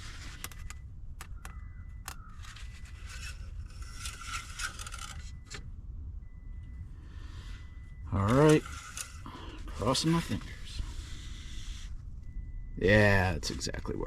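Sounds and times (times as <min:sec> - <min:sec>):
dipstick scraping and rubbing: 0:02.3 - 0:05.6.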